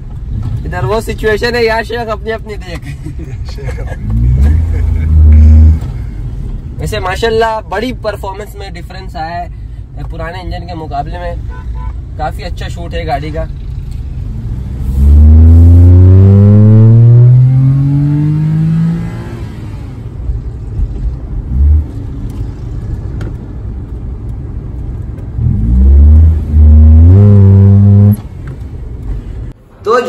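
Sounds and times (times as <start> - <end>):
car engine accelerating: 3.9 - 6.2, 13.5 - 23.1, 24.9 - 29.1.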